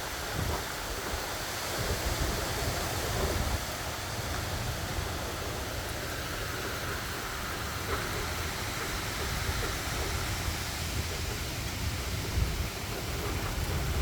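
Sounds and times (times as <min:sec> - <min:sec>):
rain hissing: 0:00.0 - 0:14.0.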